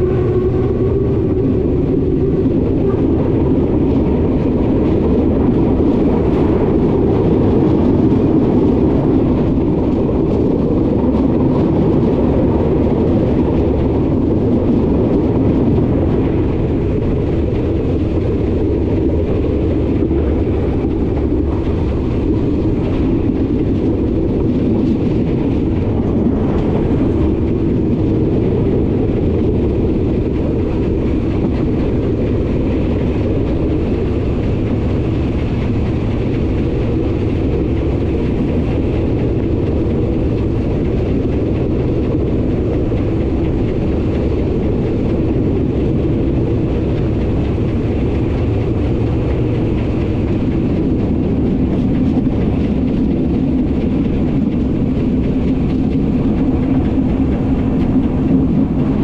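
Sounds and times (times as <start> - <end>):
steam train whistle: 0.0 - 3.1
train wheels rumbling on rails: 0.0 - 59.0.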